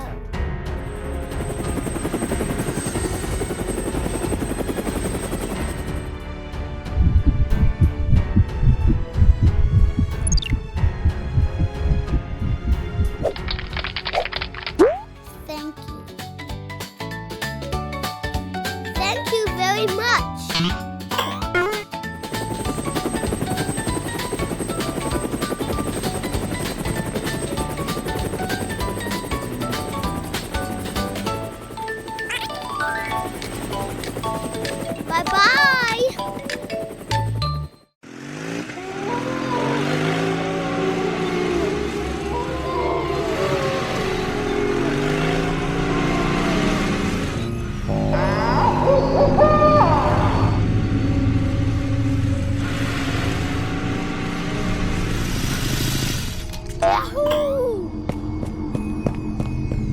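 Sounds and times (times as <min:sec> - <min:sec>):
helicopter rotor chop: 0:00.0 - 0:15.0, 0:18.7 - 0:48.0, 0:49.6 - 0:59.9
light background music: 0:00.0 - 0:37.8
rhythmic engine-like sound effect: 0:00.7 - 0:06.3, 0:21.2 - 0:38.4.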